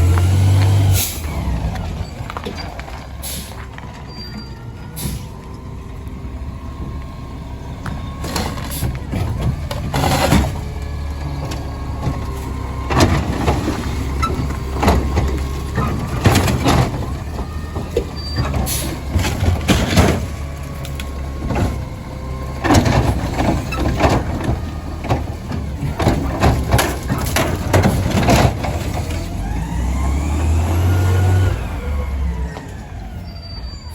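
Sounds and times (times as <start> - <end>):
truck engine running: 0.0 - 33.9
bins banging against hopper: 7.8 - 29.6.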